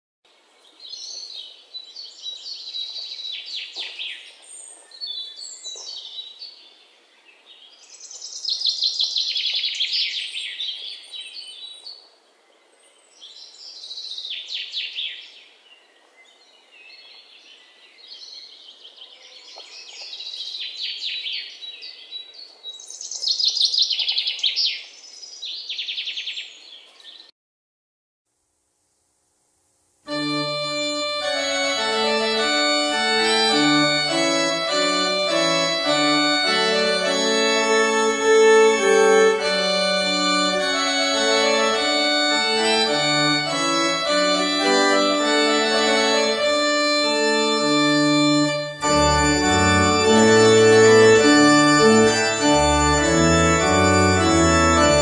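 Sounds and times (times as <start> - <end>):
songbirds singing: 0.3 - 27.3.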